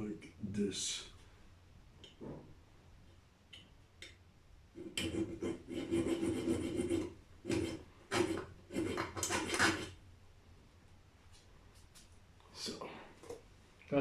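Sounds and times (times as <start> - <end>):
hand tool scraping steel: 4.8 - 10.0.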